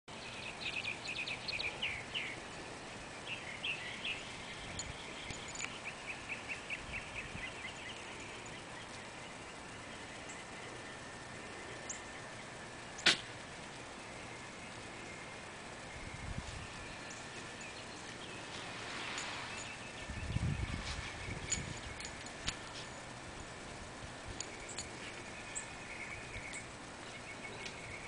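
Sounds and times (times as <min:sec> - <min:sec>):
bird chirping: 0:00.1 - 0:02.6, 0:03.2 - 0:12.6, 0:14.0 - 0:23.0, 0:24.4 - 0:28.0
sharp click: 0:13.0 - 0:13.3.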